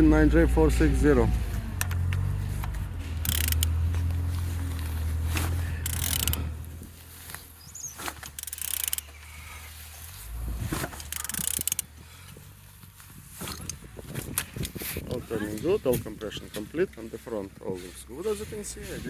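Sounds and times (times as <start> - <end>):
ratchet clicking: 3.2 - 3.8, 5.8 - 6.5, 8.1 - 9.2, 11.0 - 11.9.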